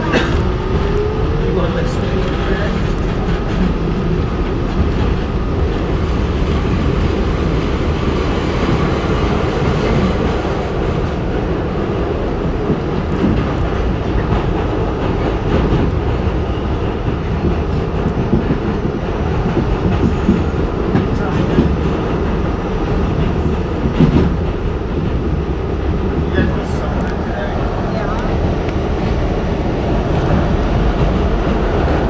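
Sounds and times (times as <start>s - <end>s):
subway wheels rumbling on rail: 0.0s - 32.0s.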